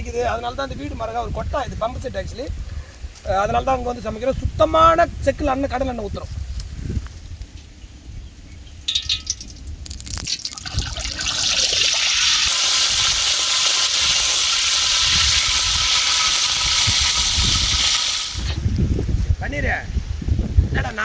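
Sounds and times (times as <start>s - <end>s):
oil pouring into wok: 8.9s - 18.5s.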